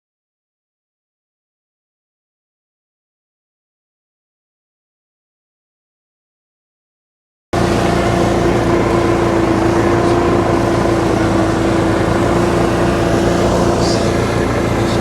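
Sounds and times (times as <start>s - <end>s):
engine running steadily: 7.6s - 15.0s.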